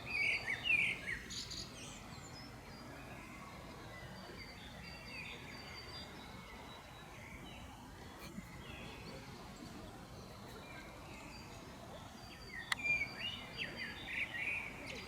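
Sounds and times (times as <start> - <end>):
birds chirping and calling: 0.0 - 2.5, 7.3 - 15.0
outdoor background hiss: 0.0 - 15.0.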